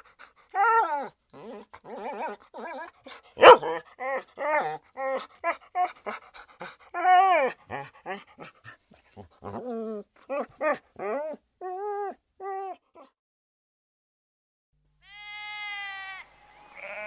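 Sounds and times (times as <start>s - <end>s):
dog whining and yelping: 0.0s - 13.2s.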